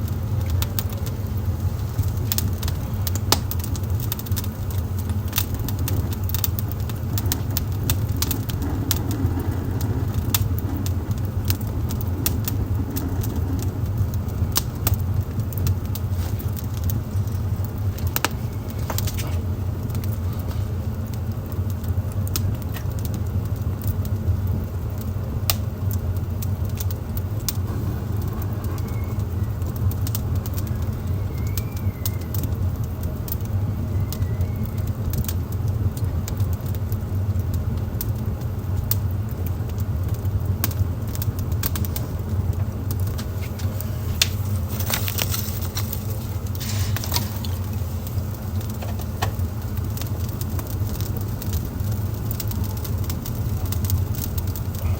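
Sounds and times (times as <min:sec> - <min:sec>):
low fire rumble: 0:00.0 - 0:54.9
wood fire crackling and popping: 0:00.0 - 0:54.9.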